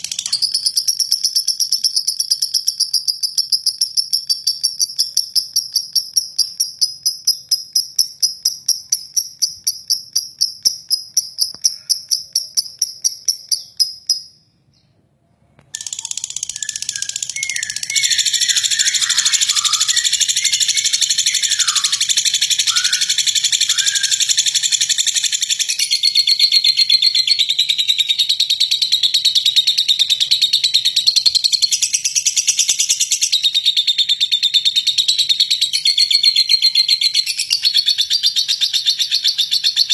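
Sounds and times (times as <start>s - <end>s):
lovebird harsh chattering: 0.0s - 14.3s, 15.8s - 27.4s
rapid high chirping: 0.0s - 14.4s, 15.7s - 39.9s.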